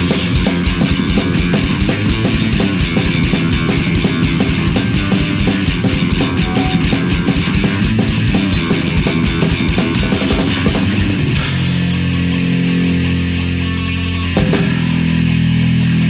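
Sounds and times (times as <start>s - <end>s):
fast drum beat: 0.0s - 12.6s
distorted electric guitar: 0.0s - 16.0s.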